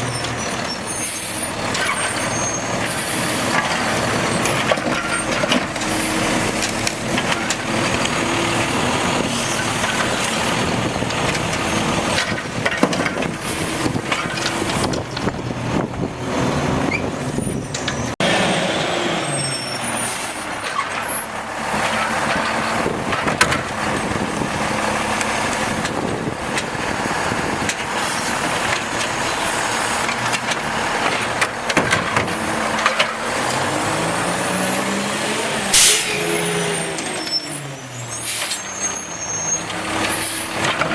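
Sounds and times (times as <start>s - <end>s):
diesel engine running: 0.9s - 40.9s
air brake hiss: 35.7s - 36.3s.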